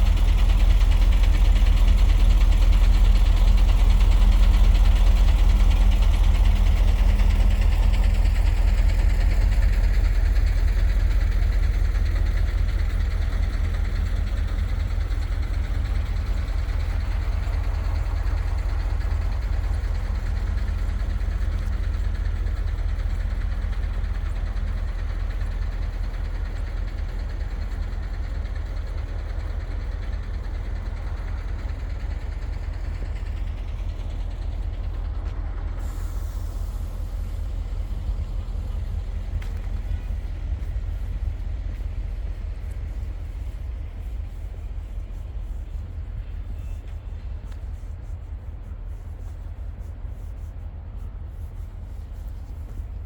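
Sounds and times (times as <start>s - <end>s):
vehicle engine rumbling: 0.0s - 53.0s.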